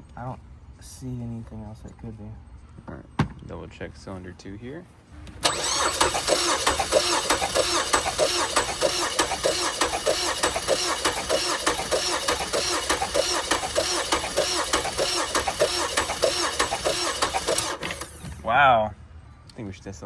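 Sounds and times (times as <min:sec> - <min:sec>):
car engine cranking on starter: 0:05.4 - 0:18.6.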